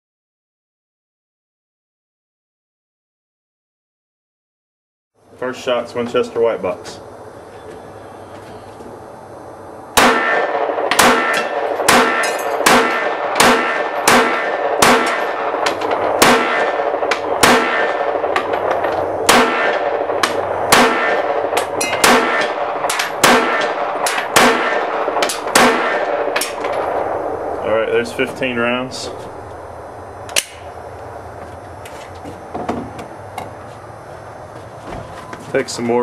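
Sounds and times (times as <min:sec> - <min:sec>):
pistol shots ringing: 0:10.0 - 0:27.4.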